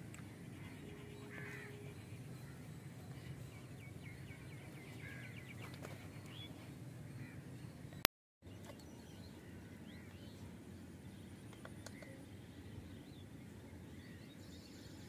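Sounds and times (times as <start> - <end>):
low background hum: 0.0 - 15.0
faint bird calls: 0.5 - 7.5, 11.6 - 12.5.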